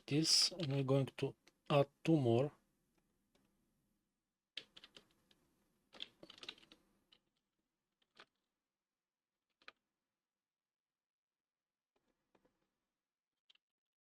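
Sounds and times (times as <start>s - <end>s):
computer keyboard clicking: 4.6s - 5.1s, 5.9s - 6.8s.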